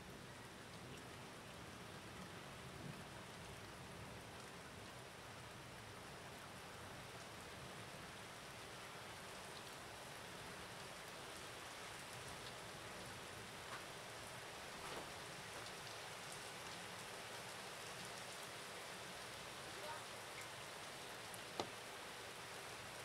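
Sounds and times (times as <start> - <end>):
faint rain falling: 0.0 - 23.0
raindrop ticks: 21.4 - 21.8.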